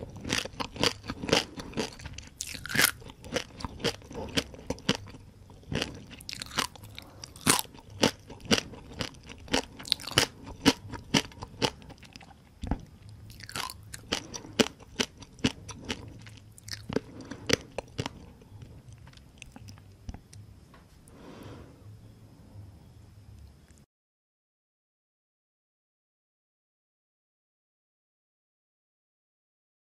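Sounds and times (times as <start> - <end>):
crunchy chewing: 0.0 - 20.5.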